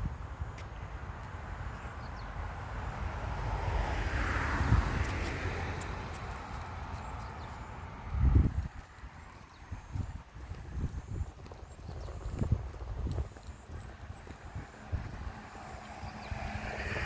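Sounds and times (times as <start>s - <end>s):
vehicle passing by: 2.1s - 11.2s, 13.2s - 17.0s.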